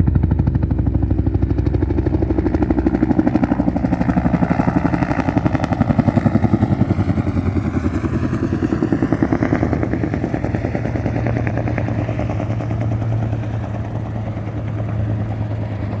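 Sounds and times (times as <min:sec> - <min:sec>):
steady low hum: 0:00.0 - 0:08.0
helicopter rotor beating: 0:00.0 - 0:16.0
turbine running: 0:00.0 - 0:16.0.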